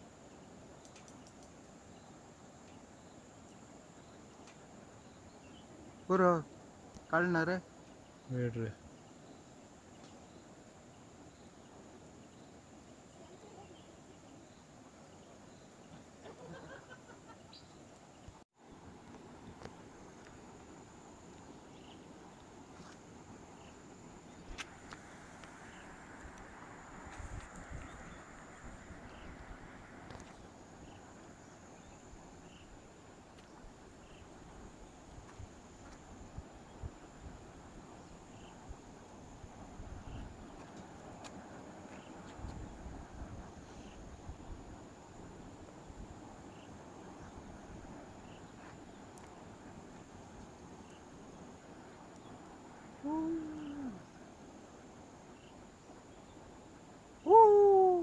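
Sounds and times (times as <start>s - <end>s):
crickets trilling: 0.0s - 58.0s
insects chirping: 0.0s - 58.0s
low rushing noise: 18.7s - 41.9s.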